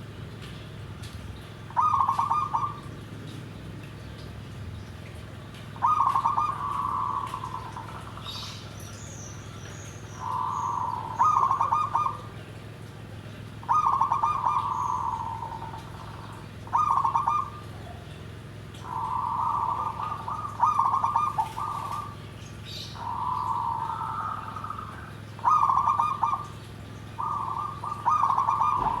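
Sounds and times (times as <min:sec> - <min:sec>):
dove cooing: 0:01.7 - 0:03.0, 0:05.8 - 0:08.5, 0:10.2 - 0:12.5, 0:13.5 - 0:29.0.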